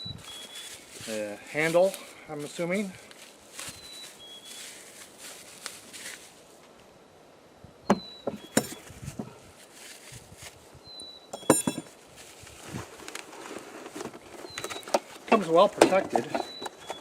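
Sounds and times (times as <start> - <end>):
thin high whistles: 0.0 - 0.9
metal parts clinking: 8.5 - 8.8, 11.4 - 11.9.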